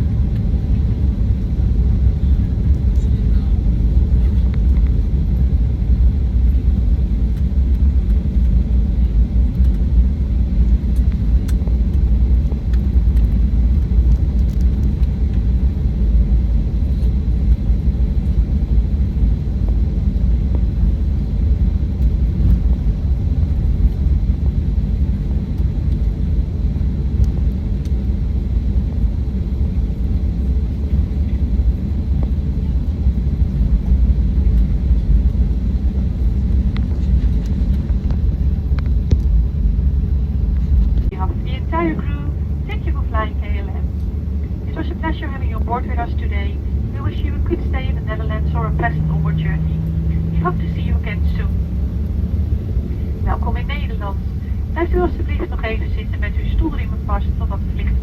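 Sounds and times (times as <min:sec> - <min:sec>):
airplane cabin engine rumble: 0:00.0 - 0:58.0.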